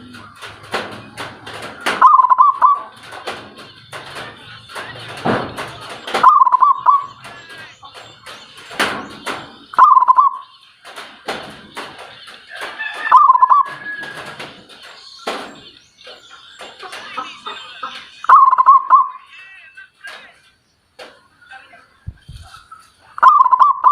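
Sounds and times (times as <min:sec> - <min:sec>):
bird warbling call: 0:01.9 - 0:03.0, 0:06.0 - 0:10.8, 0:11.8 - 0:14.1, 0:14.8 - 0:19.5, 0:21.4 - 0:23.9.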